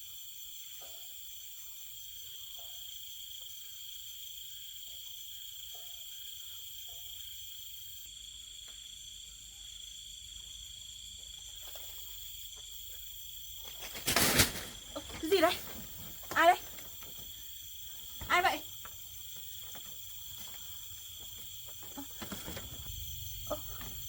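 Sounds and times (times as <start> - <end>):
crickets and insects trilling: 0.0 - 24.0.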